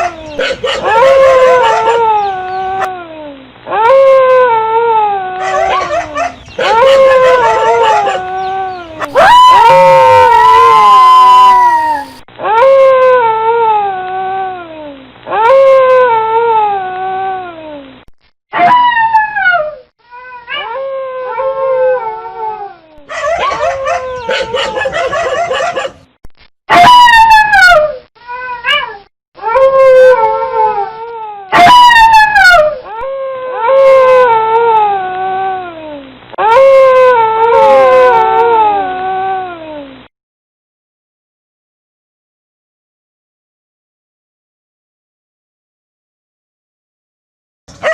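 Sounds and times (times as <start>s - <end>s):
dogs howling: 0.0s - 3.0s, 3.7s - 13.9s, 20.5s - 26.0s, 28.7s - 35.7s, 36.4s - 39.4s.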